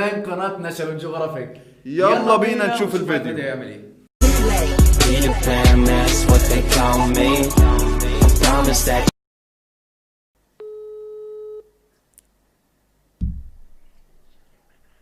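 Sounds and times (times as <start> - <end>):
intro music: 4.2 - 9.1
telephone line tone: 10.6 - 11.7
low thud: 13.2 - 14.0.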